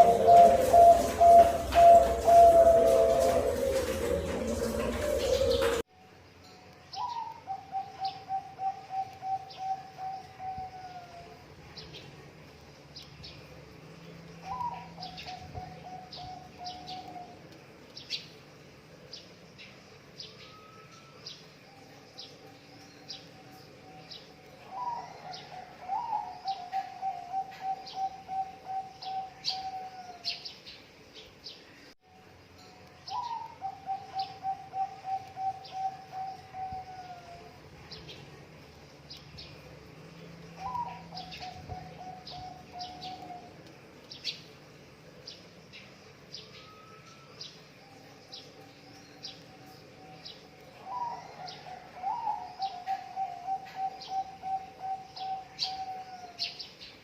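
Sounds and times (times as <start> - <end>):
dove cooing: 0.0 - 5.8, 7.0 - 11.3, 14.4 - 17.5, 24.6 - 30.4, 33.1 - 37.5, 40.6 - 43.7, 50.8 - 56.5
small birds chirping: 6.8 - 32.0, 32.8 - 57.0.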